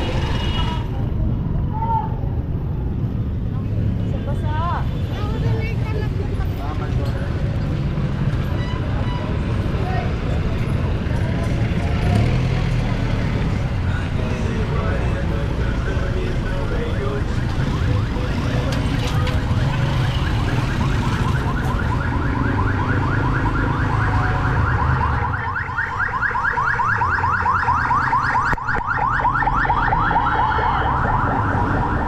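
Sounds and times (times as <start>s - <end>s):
low street rumble: 0.0s - 32.0s.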